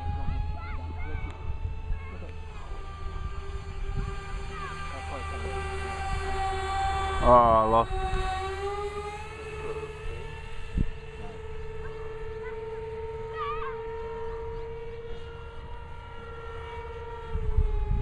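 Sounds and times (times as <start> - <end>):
electric ducted fans whining: 0.0 - 18.0
low rumbling: 0.0 - 18.0.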